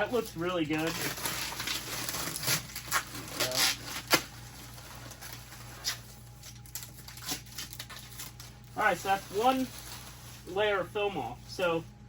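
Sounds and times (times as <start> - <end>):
plastic film rustling: 0.0 - 11.8
plastic film snapping: 0.8 - 4.5, 5.1 - 8.5.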